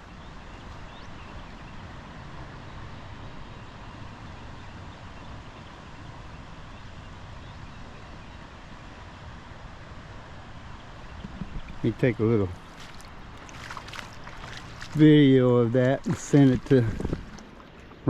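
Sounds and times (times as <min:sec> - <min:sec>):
creek floodwater rushing: 0:08.5 - 0:18.0.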